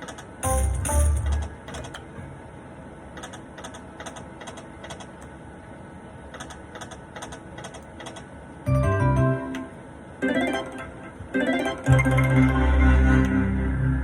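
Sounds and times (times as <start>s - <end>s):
electronic hum of machines: 0.0s - 14.0s
gaming machine music: 0.4s - 2.1s, 8.7s - 14.0s.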